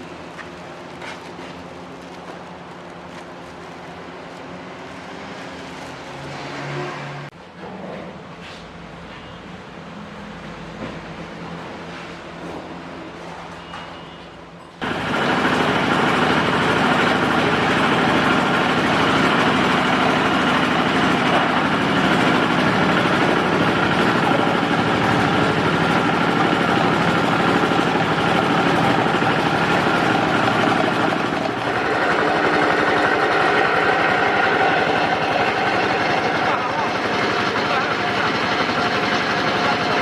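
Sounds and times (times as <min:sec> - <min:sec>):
pellet machine running: 0:14.8 - 0:40.0.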